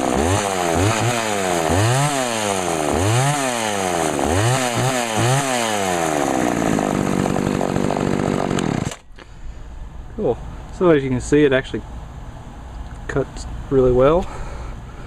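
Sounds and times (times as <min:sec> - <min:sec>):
chainsaw revving while cutting: 0:00.0 - 0:09.0.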